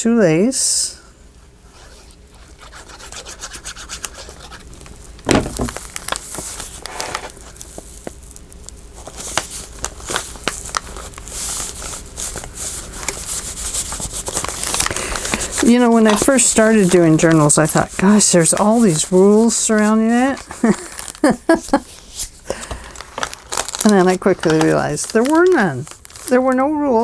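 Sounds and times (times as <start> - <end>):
paper and lace rustling: 5.3 - 8.3, 9.0 - 27.0.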